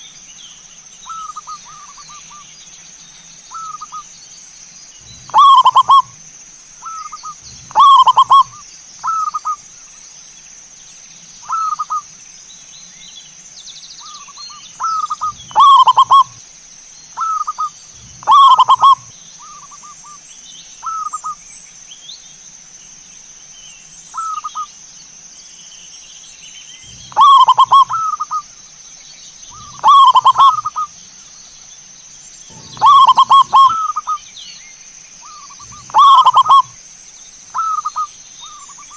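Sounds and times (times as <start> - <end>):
dove cooing: 5.0 - 6.2, 6.8 - 9.6, 14.8 - 16.4, 17.2 - 20.0, 26.9 - 28.4, 29.5 - 30.9, 32.5 - 34.2, 35.2 - 36.8, 37.6 - 38.9.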